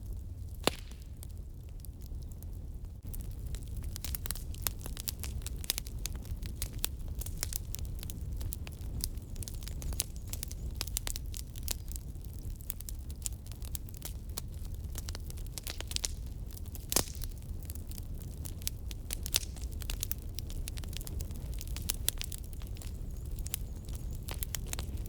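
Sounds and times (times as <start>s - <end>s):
firewood crackling: 0.0s - 25.0s.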